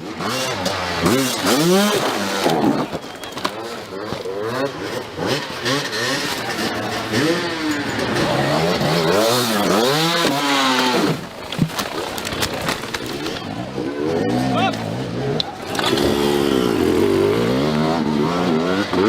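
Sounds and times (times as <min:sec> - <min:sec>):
dirt bike engine revving: 0:00.0 - 0:11.4, 0:13.0 - 0:19.0.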